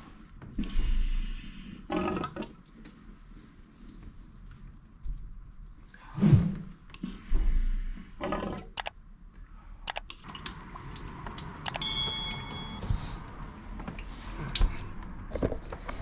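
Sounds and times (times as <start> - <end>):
handling clicks and knocks: 11.7 - 12.8
short metallic ring: 11.7 - 13.0.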